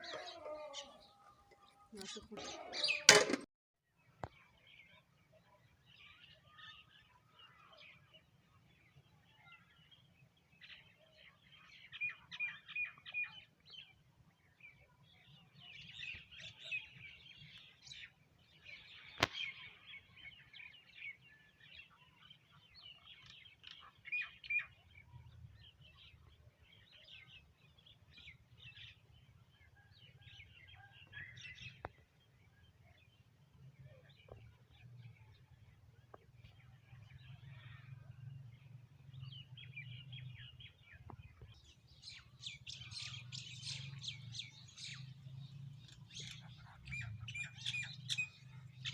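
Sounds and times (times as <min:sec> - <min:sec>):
sparrows chirping: 0:00.0 - 0:03.4, 0:36.4 - 0:38.3, 0:39.0 - 0:48.9.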